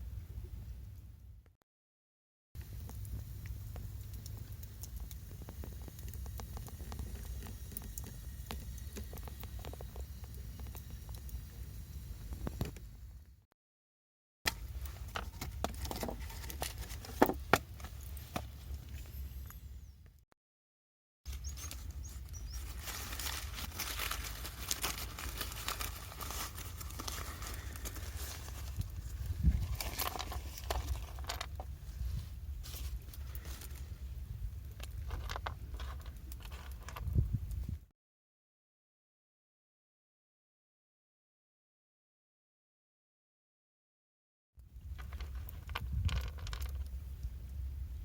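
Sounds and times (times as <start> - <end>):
small crackles and clicks: 2.6 - 11.6, 21.3 - 31.7, 34.5 - 37.7, 44.9 - 47.6
steady low rumble: 2.6 - 13.3, 21.3 - 37.8
crackling and rustling: 14.5 - 19.3, 21.3 - 37.6, 44.8 - 47.6.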